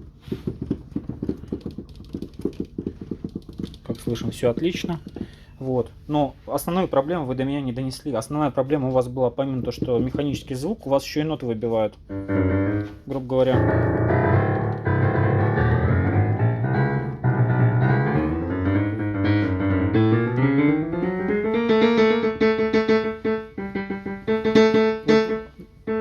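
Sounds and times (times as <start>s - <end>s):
digital piano chords: 12.1s - 26.0s
piano notes struck repeatedly: 12.1s - 26.0s.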